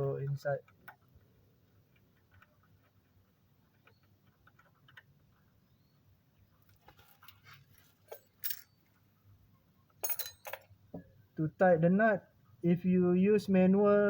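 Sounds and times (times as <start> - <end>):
metallic clinks of hand tools: 8.1 - 8.8, 10.0 - 10.7.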